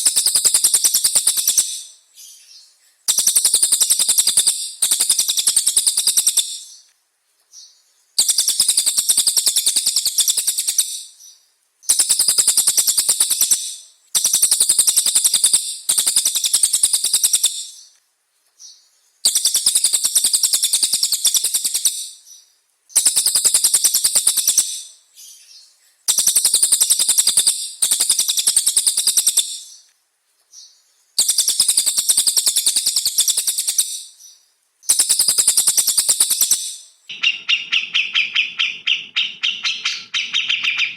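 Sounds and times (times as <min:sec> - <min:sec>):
songbird trilling: 0:30.6 - 0:40.9.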